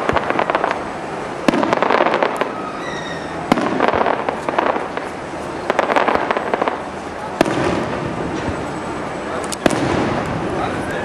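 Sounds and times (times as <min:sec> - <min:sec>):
fireworks bangs: 0:00.0 - 0:11.0
high firework whistle: 0:01.5 - 0:04.4
crackle of small pops: 0:09.4 - 0:10.4.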